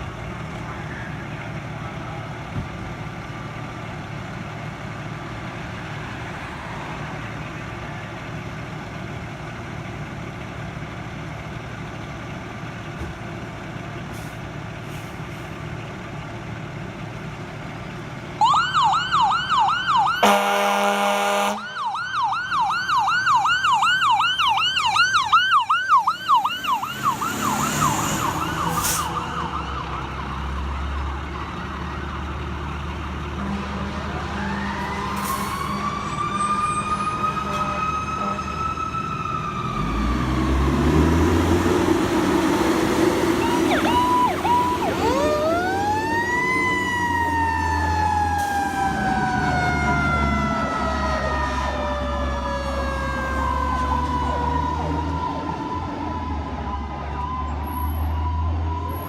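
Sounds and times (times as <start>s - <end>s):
electronic siren yelp: 18.4s - 30.7s, 43.2s - 59.0s
air horn blast: 20.2s - 21.6s
truck engine running: 40.8s - 51.3s.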